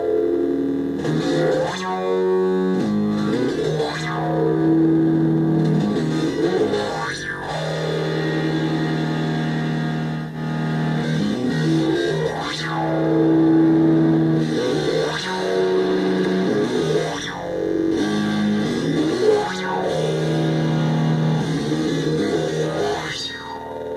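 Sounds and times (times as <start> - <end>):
synthesizer drone with resonant sweep: 0.0 - 23.9.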